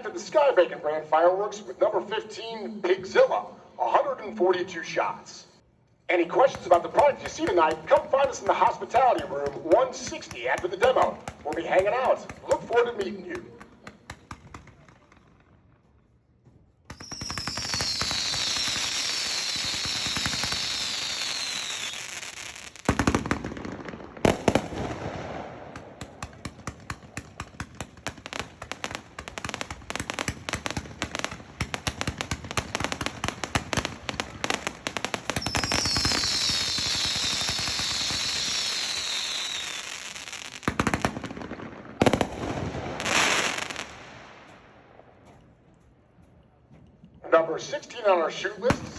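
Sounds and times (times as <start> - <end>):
rapid sharp firework reports: 6.1 - 14.9, 16.9 - 22.0, 22.9 - 44.4, 47.3 - 48.9
loud firework bangs: 6.4 - 15.2, 16.9 - 45.2
firework whistles: 16.9 - 22.8, 35.3 - 40.6.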